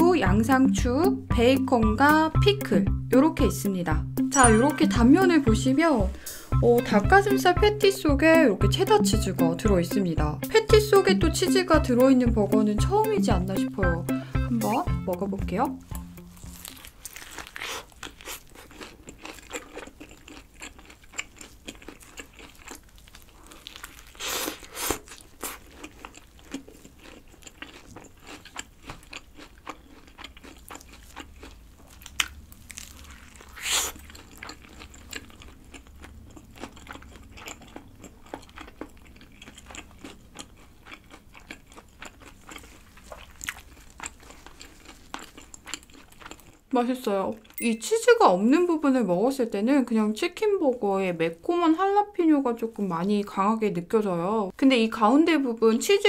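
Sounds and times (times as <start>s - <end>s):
soft chewing: 15.9s - 47.6s
crisp crunching bites: 16.2s - 46.6s.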